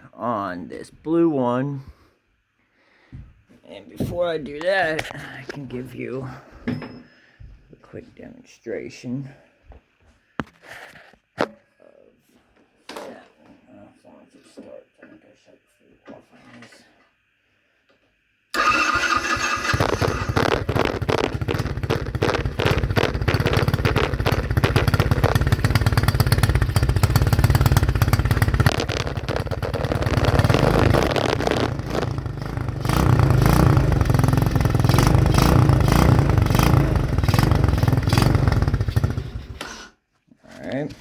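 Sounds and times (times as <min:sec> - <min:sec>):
quad engine revving: 0:18.6 - 0:39.8.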